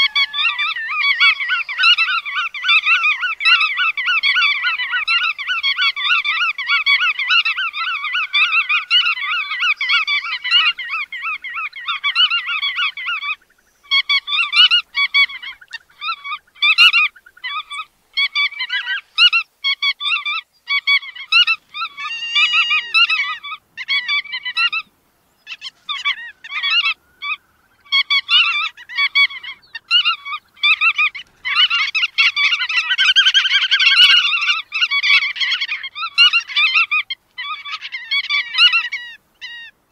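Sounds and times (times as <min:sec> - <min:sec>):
birds chattering nasal calls: 0:00.0 - 0:39.7.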